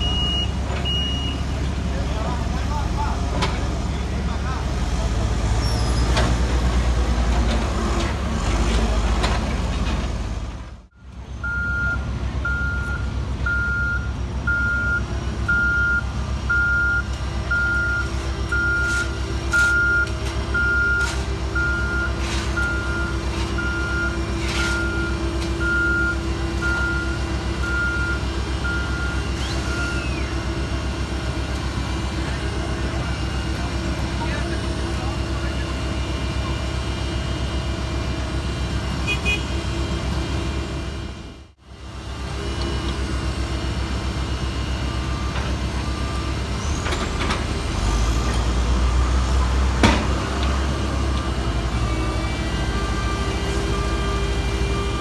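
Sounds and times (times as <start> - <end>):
back-up alarm beeping: 0.0 - 1.4, 11.4 - 30.4
diesel machinery rumbling: 0.0 - 55.0.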